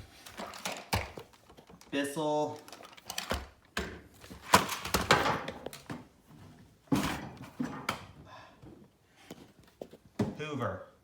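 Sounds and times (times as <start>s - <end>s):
handling knocks and clatter: 0.2s - 2.0s.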